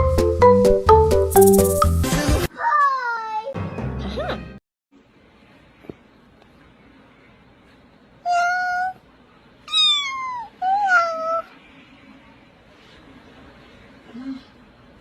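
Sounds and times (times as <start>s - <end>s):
cat meowing: 9.7s - 11.5s.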